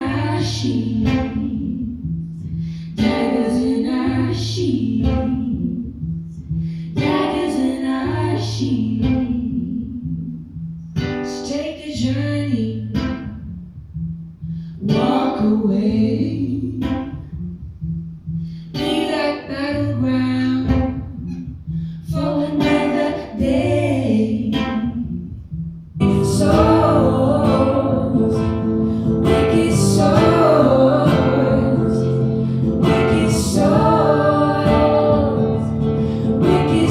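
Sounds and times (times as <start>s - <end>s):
low bass line: 0.0s - 11.1s, 12.0s - 18.8s, 19.6s - 22.6s, 23.3s - 36.9s
plucked guitar: 0.0s - 36.9s
person singing: 2.6s - 6.0s, 6.9s - 10.4s, 14.8s - 17.3s, 18.8s - 21.2s, 22.1s - 25.2s, 26.0s - 36.9s.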